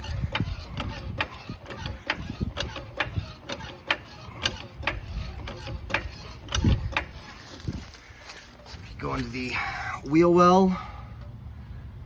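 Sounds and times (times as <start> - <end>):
mechanical ticking: 0.0 - 7.4.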